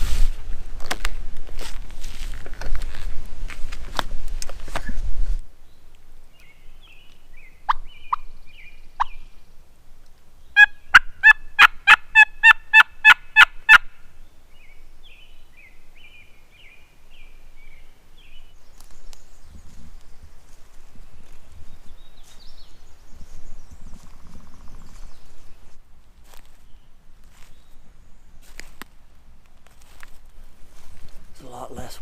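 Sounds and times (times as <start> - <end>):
turkey clucks: 10.6 - 13.9
turkey call yelps: 10.6 - 14.0
faint small birds chirping: 14.1 - 28.9.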